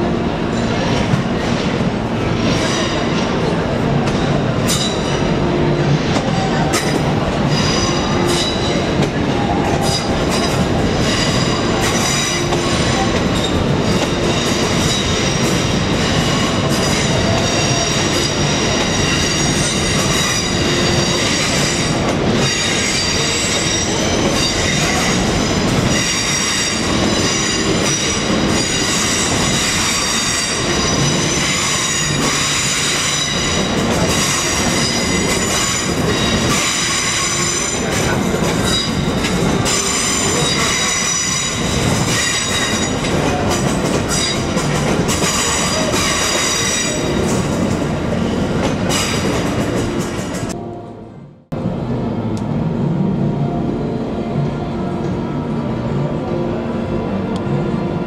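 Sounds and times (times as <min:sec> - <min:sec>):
train wheels squealing: 0:06.2 - 0:47.6.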